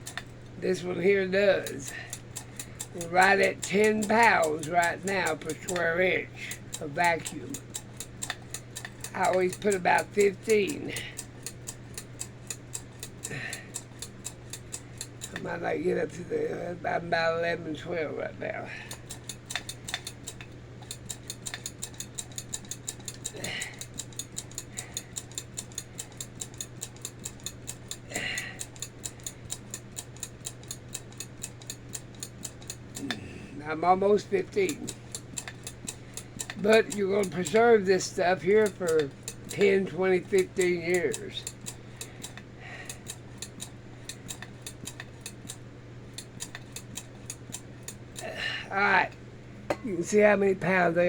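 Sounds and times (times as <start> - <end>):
hand vacuum pump clicking: 0.0 - 15.5, 18.9 - 33.2, 34.3 - 45.6, 46.2 - 48.3
faint steady hum: 0.0 - 51.0.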